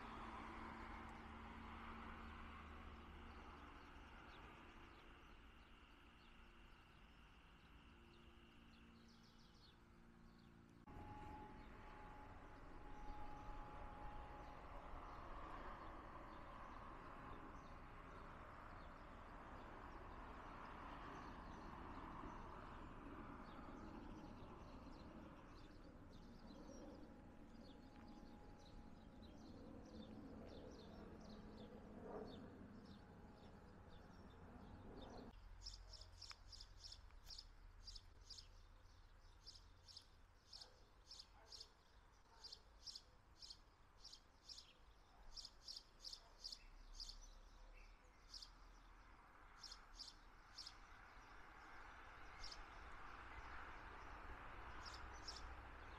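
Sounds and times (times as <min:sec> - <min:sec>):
faint outdoor hum: 0:00.0 - 0:55.9
small birds chirping: 0:15.8 - 0:55.9.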